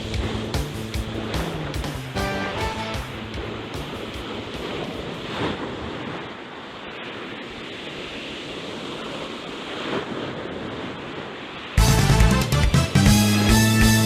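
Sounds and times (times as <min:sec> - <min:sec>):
sea waves washing on shore: 0:00.0 - 0:12.3.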